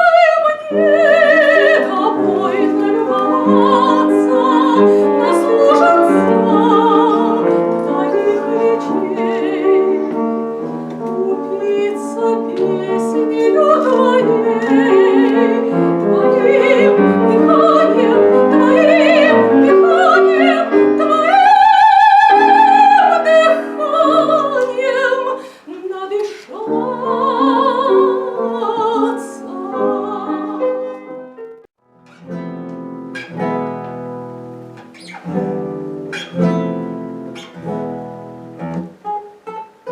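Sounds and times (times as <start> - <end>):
operatic solo singing: 0.0 - 10.4, 11.2 - 31.0
piano: 0.0 - 39.9.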